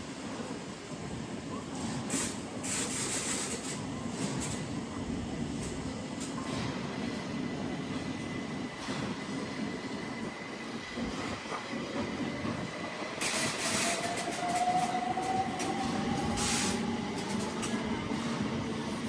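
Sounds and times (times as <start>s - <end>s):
train motor whine: 12.7s - 19.0s.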